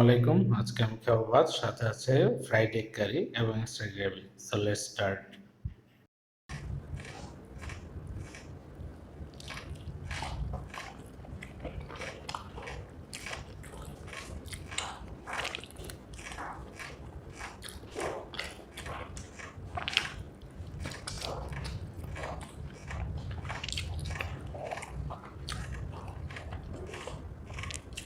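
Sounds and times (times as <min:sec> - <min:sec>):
close chewing and mouth sounds: 0:06.5 - 0:28.0.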